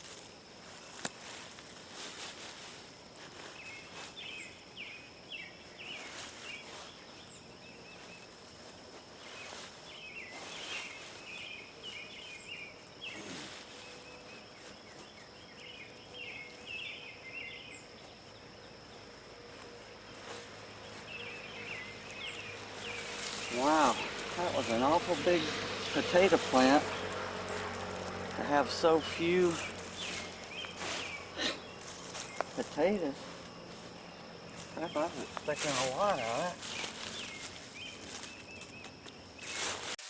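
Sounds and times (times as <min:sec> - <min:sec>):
plant rustling and scraping: 0:00.0 - 0:04.6, 0:05.8 - 0:15.5, 0:19.6 - 0:40.0
birds chirping: 0:03.4 - 0:08.4, 0:09.1 - 0:39.7
high-pitched whine: 0:15.2 - 0:37.7.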